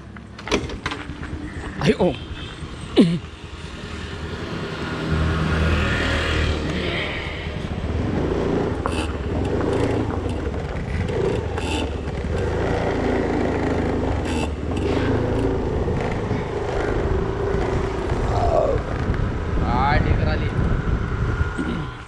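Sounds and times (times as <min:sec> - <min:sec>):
motorbike engine running: 0:07.6 - 0:21.9.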